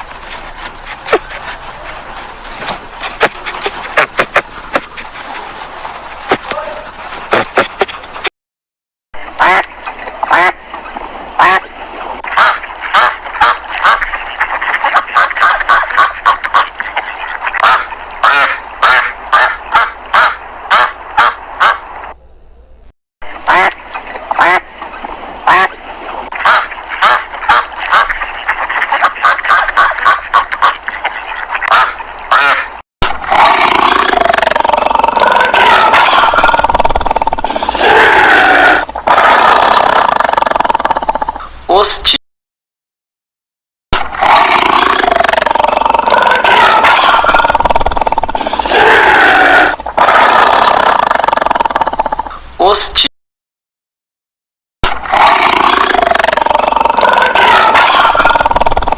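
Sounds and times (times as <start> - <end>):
ducks quacking: 0.0 - 8.3, 9.2 - 21.9, 23.3 - 32.8.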